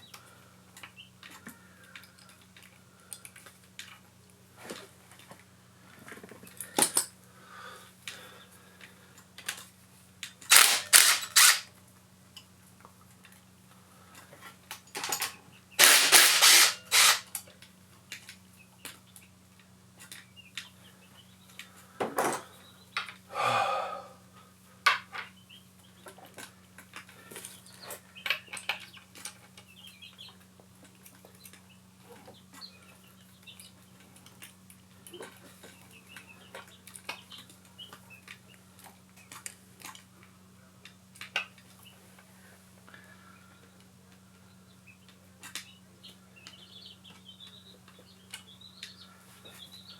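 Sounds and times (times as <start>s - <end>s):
metallic clatter of tools: 10.5s - 11.7s, 14.9s - 17.4s.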